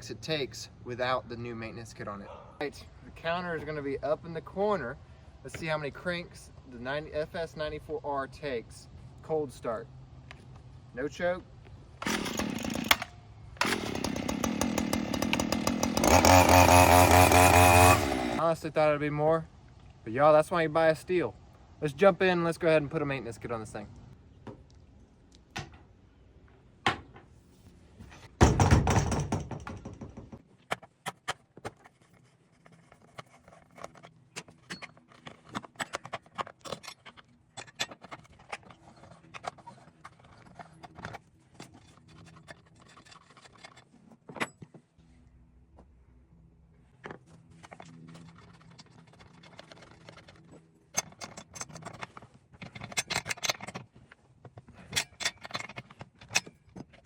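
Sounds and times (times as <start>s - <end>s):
tools and plastic parts rattling: 28.0s - 44.9s, 46.8s - 57.0s.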